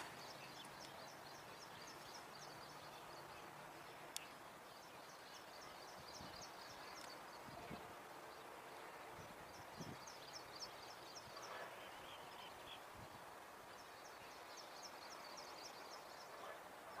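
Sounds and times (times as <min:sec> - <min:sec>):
faint outdoor ambience: 0:00.0 - 0:17.0.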